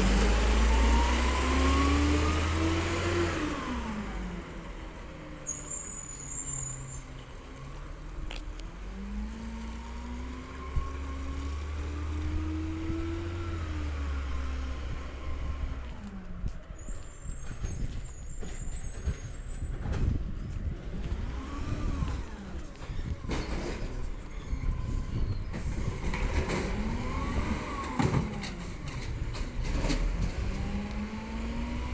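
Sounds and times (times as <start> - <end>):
garbage truck diesel engine revving: 0.0 - 5.1, 25.6 - 31.9.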